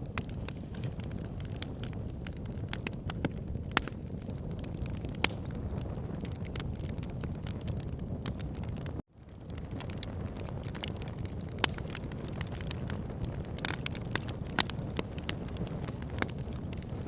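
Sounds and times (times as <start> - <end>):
fire crackling and popping: 0.0 - 17.0
low rumble of flames: 0.0 - 17.0.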